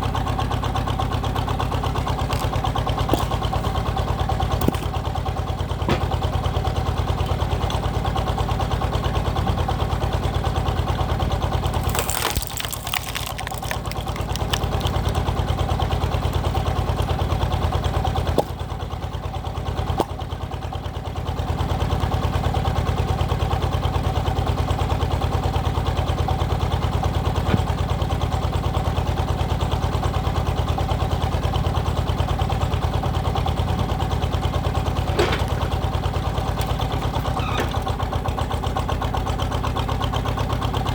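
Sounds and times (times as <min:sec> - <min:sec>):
diesel engine puttering: 0:00.0 - 0:40.9
sharp crackling: 0:11.7 - 0:15.5.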